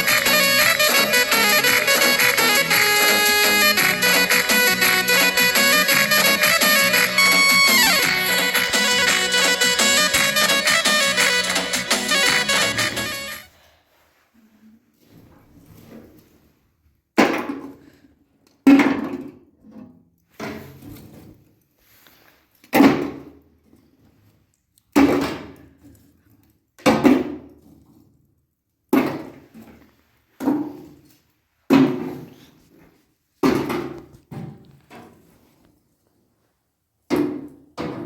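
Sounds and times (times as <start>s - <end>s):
heavy blows: 0.0s - 13.4s.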